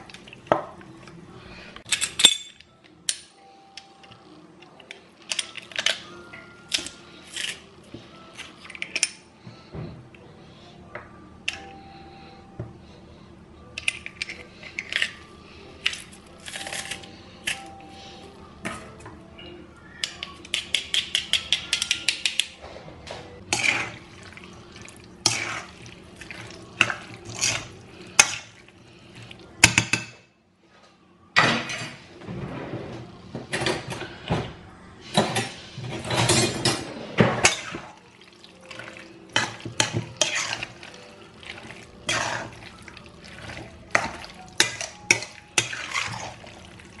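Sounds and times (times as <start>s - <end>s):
dishes and pans clinking: 35.1s - 47.0s.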